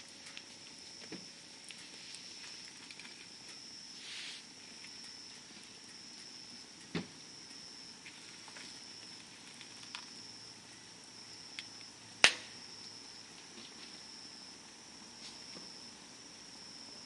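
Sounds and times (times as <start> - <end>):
campfire crackling: 0.0 - 17.0
high insect trill: 0.0 - 17.0
sharp loud fire pop: 12.2 - 12.6.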